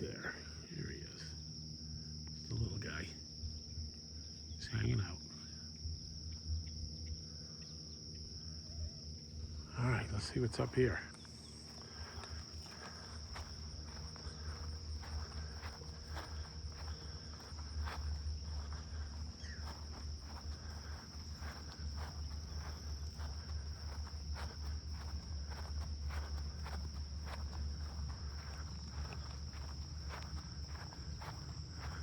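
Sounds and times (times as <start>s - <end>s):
high-pitched insect drone: 0.0s - 32.0s
footsteps crunching on trail: 9.5s - 32.0s.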